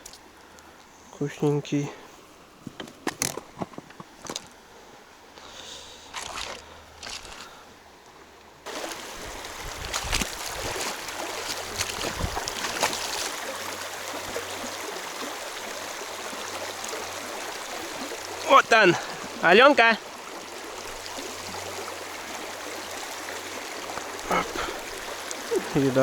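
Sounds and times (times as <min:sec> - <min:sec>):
fast river rushing: 0:08.7 - 0:26.0.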